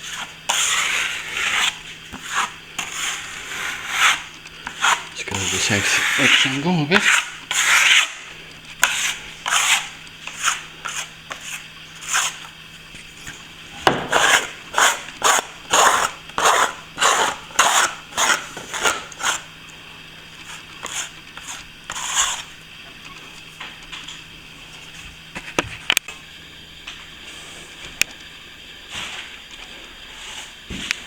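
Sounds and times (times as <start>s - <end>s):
plastering tool scraping plaster: 0.0s - 12.5s, 13.2s - 19.5s, 20.4s - 22.5s
faint steady hum: 0.0s - 31.0s.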